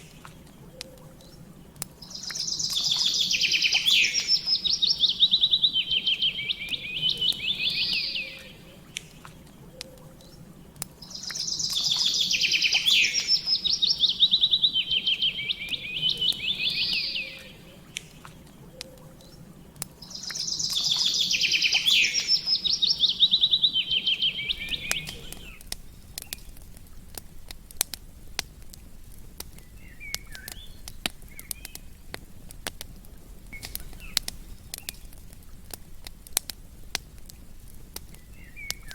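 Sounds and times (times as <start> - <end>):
campfire crackling: 0.0 - 38.9
songbird trilling: 2.0 - 9.0, 11.0 - 18.1, 20.0 - 25.6, 29.6 - 32.0, 38.2 - 38.9.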